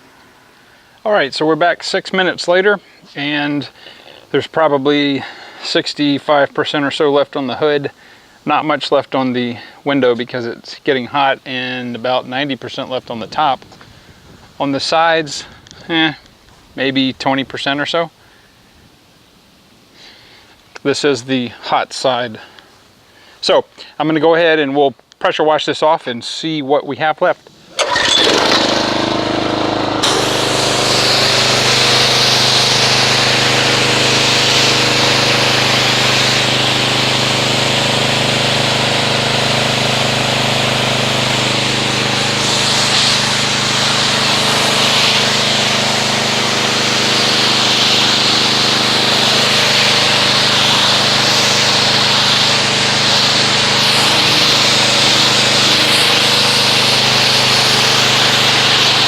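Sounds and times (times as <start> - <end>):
hissing water jet spraying: 27.7 - 59.0
pressure washer engine running: 27.7 - 59.0.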